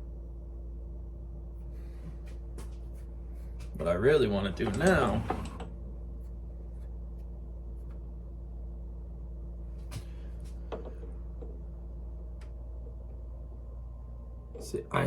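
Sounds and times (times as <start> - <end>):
lathe motor humming: 3.7 - 5.9.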